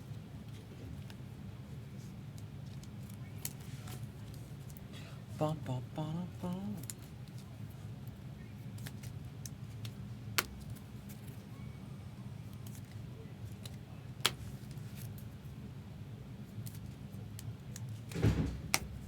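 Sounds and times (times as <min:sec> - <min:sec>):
steady low hum: 0:00.0 - 0:19.0
cards clicking and tapping: 0:08.8 - 0:11.3.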